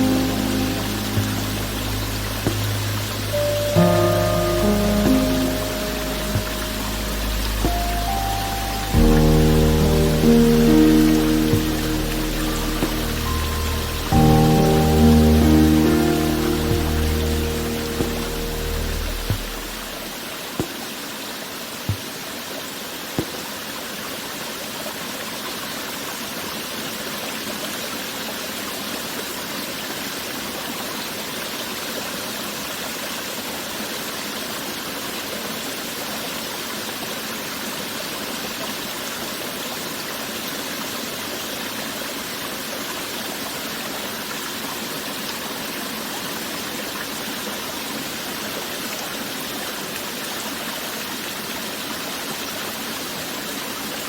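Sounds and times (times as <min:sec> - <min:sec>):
stream water rushing and babbling: 0:00.0 - 0:54.0
soft thumps: 0:01.2 - 0:03.3, 0:18.0 - 0:20.0.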